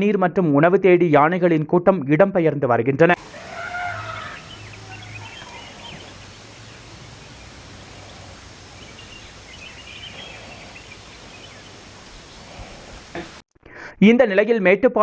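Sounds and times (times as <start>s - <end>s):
faint bird chirps: 3.3s - 13.4s.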